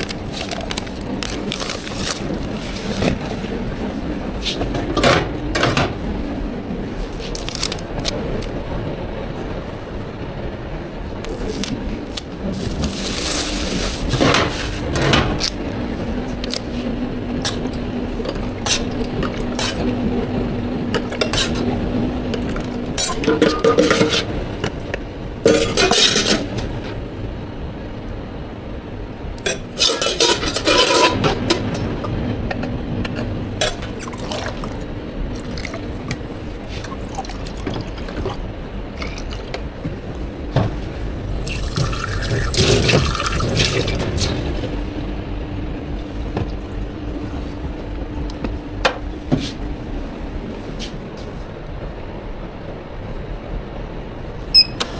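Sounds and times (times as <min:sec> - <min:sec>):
steady low hum: 0:00.0 - 0:54.9
cups and utensils clinking: 0:23.0 - 0:24.3, 0:25.5 - 0:26.5, 0:29.5 - 0:31.8
liquid pouring: 0:34.0 - 0:34.8, 0:36.8 - 0:38.4, 0:41.4 - 0:44.1.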